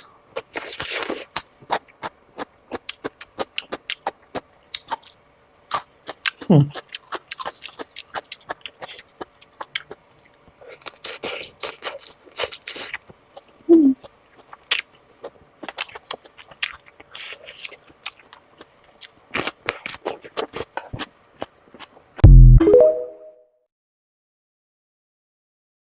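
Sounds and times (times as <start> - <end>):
wet smacking and chewing: 0.4 - 22.0
loud low thump: 22.2 - 22.7.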